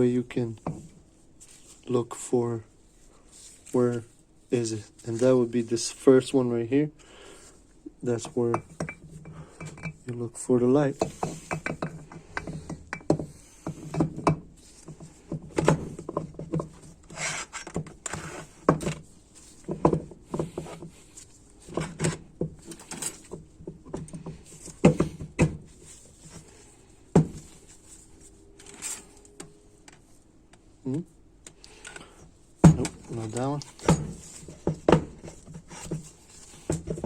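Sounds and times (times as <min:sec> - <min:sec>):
metal parts clinking and knocking: 0:11.0 - 0:15.0.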